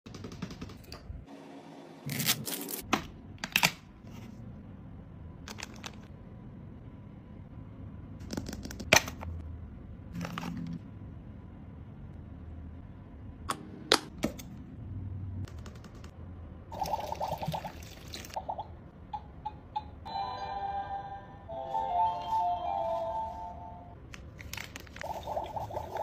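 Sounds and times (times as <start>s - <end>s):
music: 20.0s - 24.0s.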